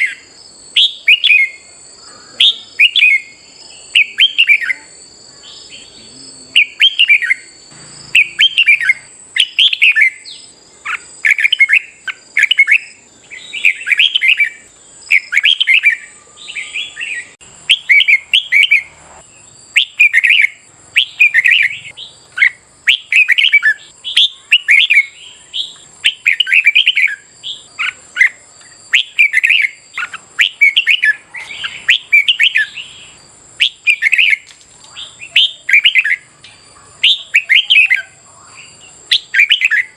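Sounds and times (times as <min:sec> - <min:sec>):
birds singing warbled phrases: 0:00.0 - 0:39.9
faint high-pitched tone: 0:15.2 - 0:19.3.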